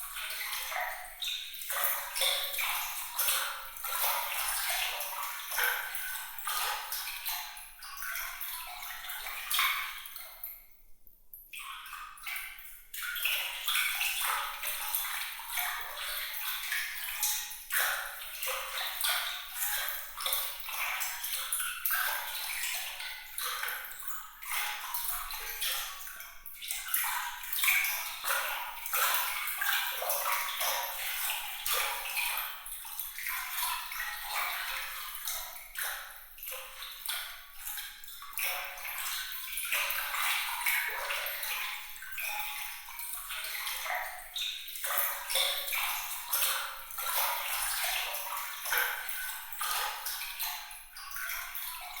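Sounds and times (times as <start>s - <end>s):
water trickling and splashing: 0.0s - 10.8s, 11.5s - 52.0s
high water drips: 11.0s - 52.0s.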